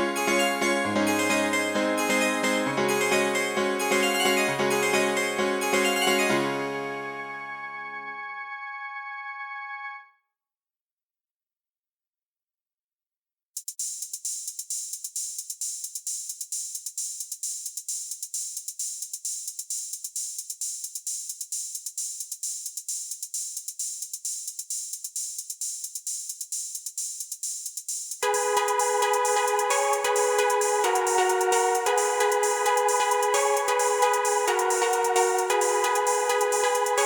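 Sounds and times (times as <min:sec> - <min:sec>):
drum-machine hi-hat pattern: 0:00.0 - 0:05.9, 0:13.6 - 0:37.0
synthesizer chords: 0:00.0 - 0:10.0, 0:28.2 - 0:37.0.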